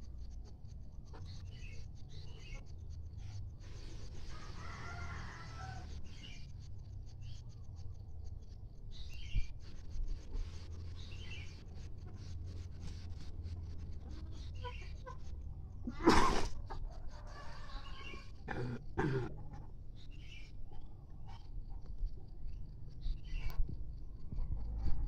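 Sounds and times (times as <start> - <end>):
rooster crowing: 4.3 - 6.0, 16.8 - 18.4
chickens calling: 9.2 - 18.5
steady low rumble: 19.3 - 25.0.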